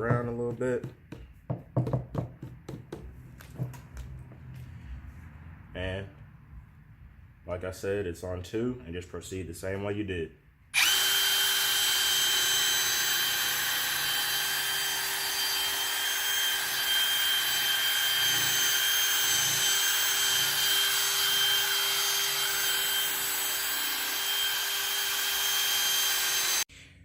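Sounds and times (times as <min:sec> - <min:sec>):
drill motor whine: 0:10.8 - 0:26.7.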